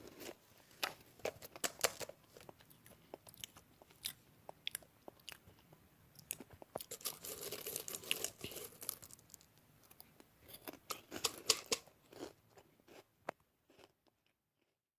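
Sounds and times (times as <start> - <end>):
crisp crunches and crackles: 6.8 - 9.5.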